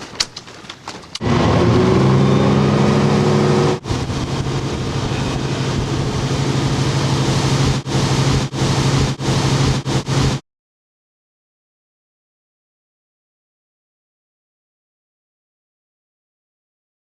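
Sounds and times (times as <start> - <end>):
crane diesel engine running: 0.0 - 10.4.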